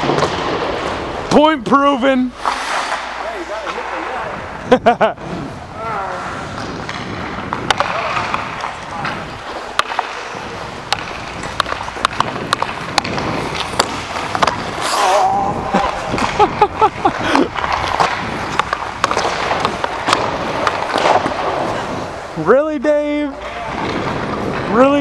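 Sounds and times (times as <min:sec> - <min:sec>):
hockey sticks clacking on puck: 0:00.0 - 0:01.5, 0:02.4 - 0:04.3, 0:06.4 - 0:25.0
skates scraping on ice: 0:00.0 - 0:25.0
players calling out: 0:07.7 - 0:24.0.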